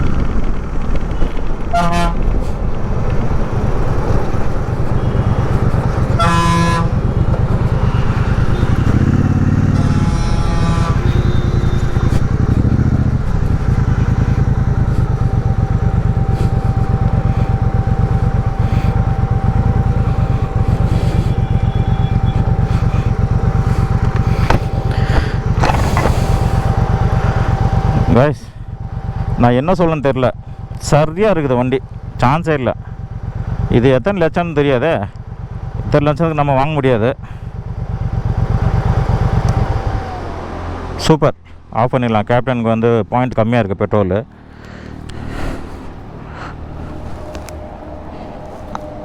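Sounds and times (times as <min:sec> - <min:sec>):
motorcycle engine running: 0:00.0 - 0:41.7, 0:44.2 - 0:49.0
vehicle horns honking: 0:01.6 - 0:02.6, 0:04.4 - 0:29.0.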